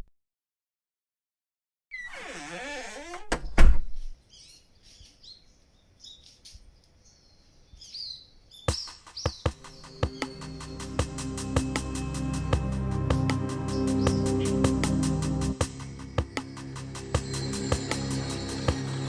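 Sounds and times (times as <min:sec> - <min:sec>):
high bird chirps: 0:07.2 - 0:11.2.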